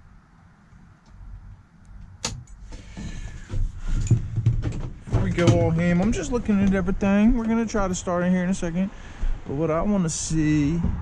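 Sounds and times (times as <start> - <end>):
handling rustling and knocking: 1.4 - 7.9.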